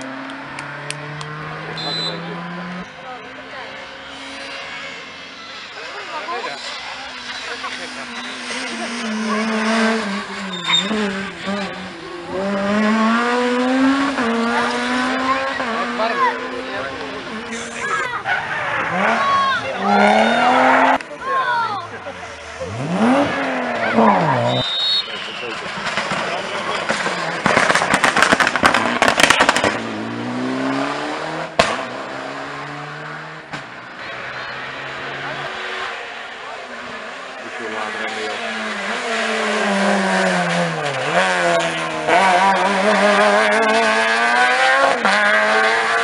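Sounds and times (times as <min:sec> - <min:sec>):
rally car engine revving: 0:00.0 - 0:46.0
exhaust crackling and popping: 0:23.4 - 0:30.2
gear change crack: 0:25.3 - 0:29.9.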